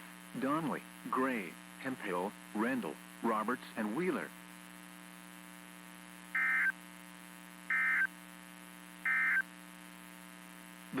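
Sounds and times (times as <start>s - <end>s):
radio electrical hum: 0.0s - 11.0s
digital data tone bursts: 6.4s - 6.8s, 7.7s - 8.1s, 9.0s - 9.5s.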